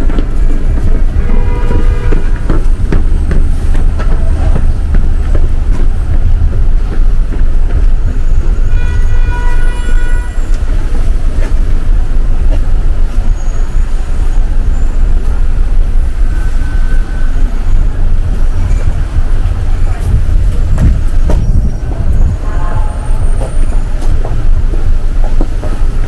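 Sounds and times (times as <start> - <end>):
city traffic rumble: 0.0 - 26.0
car horn: 0.8 - 3.4, 8.3 - 11.0, 22.1 - 24.0.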